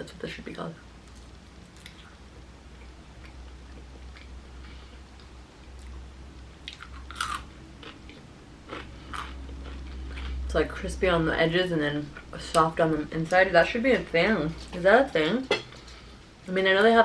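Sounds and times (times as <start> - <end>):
steady low hum: 0.0 - 17.0
chewing potato chip: 6.6 - 10.4.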